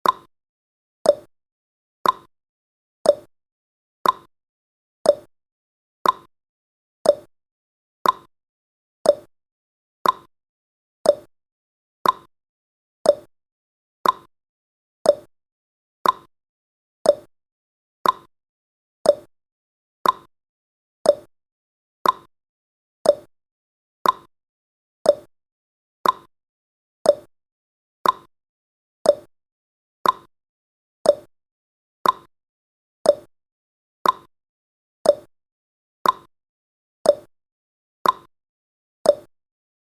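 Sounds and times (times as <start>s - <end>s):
clock ticking: 2.0s - 2.3s, 4.0s - 4.3s, 6.0s - 6.3s, 8.0s - 8.3s, 10.0s - 10.3s, 12.0s - 12.3s, 14.0s - 14.3s, 16.0s - 16.3s, 18.0s - 18.3s, 20.0s - 20.3s, 22.0s - 22.3s, 23.1s - 23.3s, 24.0s - 24.3s, 26.0s - 26.3s, 28.0s - 28.3s, 29.1s - 29.3s, 30.0s - 30.3s, 31.1s - 31.3s, 32.0s - 32.3s, 33.1s - 33.3s, 34.0s - 34.3s, 35.1s - 35.3s, 36.0s - 36.3s, 38.0s - 38.3s, 39.1s - 39.3s.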